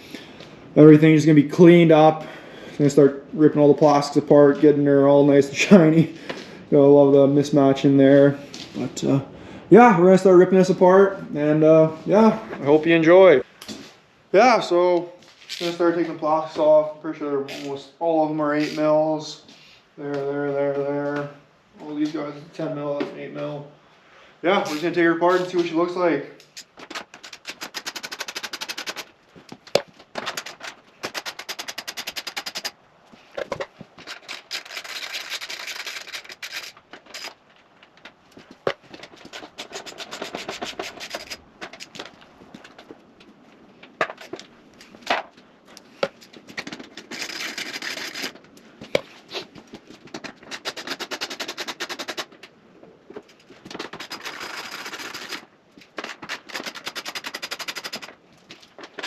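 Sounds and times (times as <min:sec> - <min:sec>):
socket wrench ratcheting: 0:26.6 - 0:29.1, 0:30.2 - 0:32.7, 0:34.0 - 0:37.4, 0:56.0 - 0:58.1.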